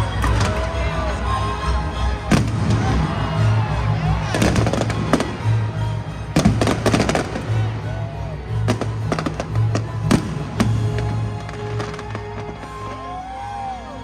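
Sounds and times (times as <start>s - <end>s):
fireworks exploding: 8.7s - 13.0s.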